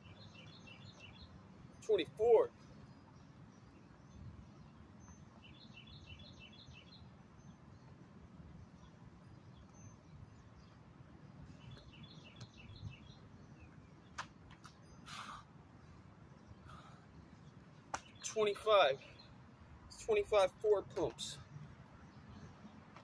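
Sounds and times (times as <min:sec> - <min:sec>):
small bird chirping: 0:00.0 - 0:01.9.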